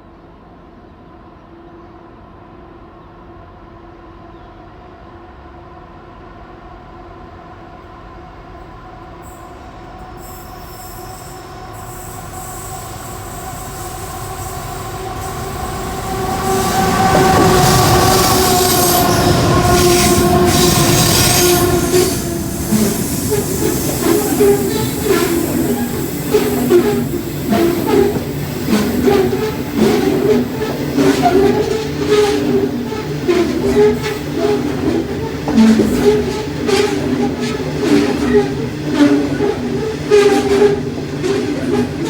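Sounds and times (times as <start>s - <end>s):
high-pitched wheel squeal: 10.2s - 42.0s
locomotive engines: 10.5s - 42.0s
wheel-on-rail noise: 12.0s - 42.0s.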